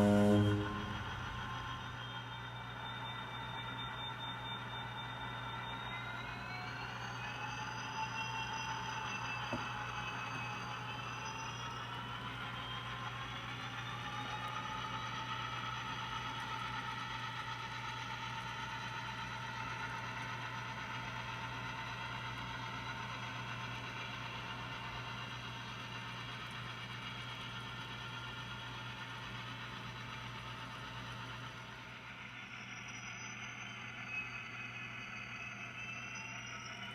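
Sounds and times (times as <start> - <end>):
constant low hum: 0.0 - 7.4
model train motor whine: 0.0 - 36.9.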